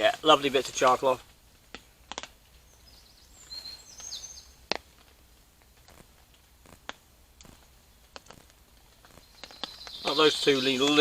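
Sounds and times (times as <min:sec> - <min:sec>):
sharp clicks: 0:01.7 - 0:02.4
songbird whistling calls: 0:02.6 - 0:04.6, 0:09.1 - 0:11.0.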